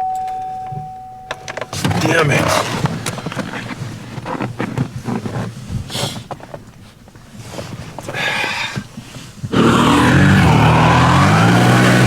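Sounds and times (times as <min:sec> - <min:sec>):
truck engine starting and revving: 0:09.5 - 0:12.0.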